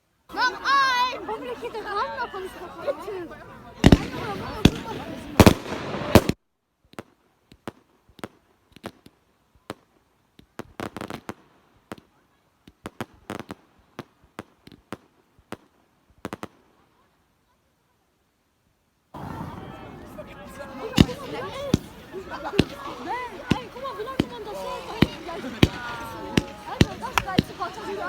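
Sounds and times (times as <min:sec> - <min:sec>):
fireworks bangs and crackles: 0:03.7 - 0:16.6, 0:19.2 - 0:28.0.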